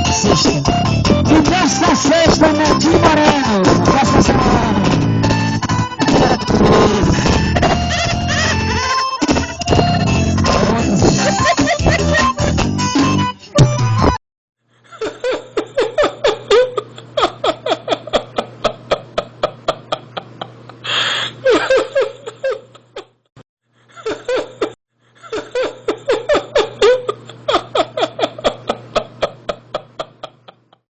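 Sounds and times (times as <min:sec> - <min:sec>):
person laughing hard: 0:06.0 - 0:12.7, 0:14.8 - 0:23.1, 0:23.9 - 0:30.8
wheezing in-breath: 0:20.8 - 0:21.4.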